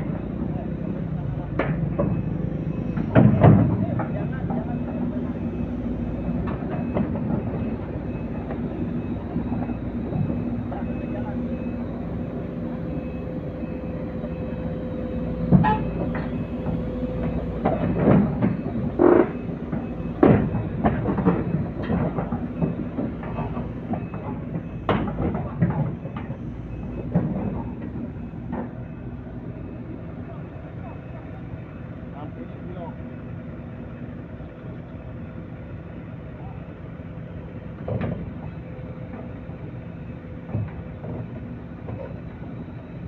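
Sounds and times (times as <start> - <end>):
heavy machinery engine running: 0.0 - 43.0
steel crawler tracks clanking: 0.0 - 43.0
short metallic knocks: 15.4 - 28.8.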